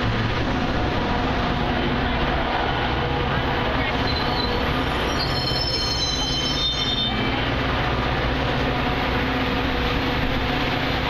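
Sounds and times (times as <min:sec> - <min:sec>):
train rumble: 0:00.0 - 0:11.0
train wheels squealing: 0:04.0 - 0:07.4.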